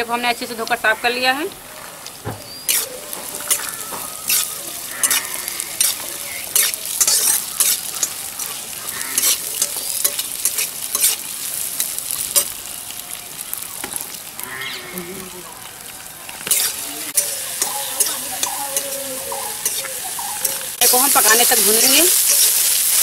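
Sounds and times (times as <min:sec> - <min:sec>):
chickpeas sizzling in oil: 0:00.0 - 0:23.0
metal spatula scraping pan: 0:02.6 - 0:11.3, 0:16.4 - 0:22.8.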